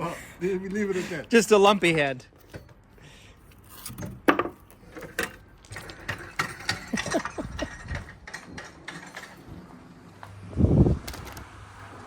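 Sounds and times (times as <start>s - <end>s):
metal tools clinking and knocking: 3.9s - 9.5s.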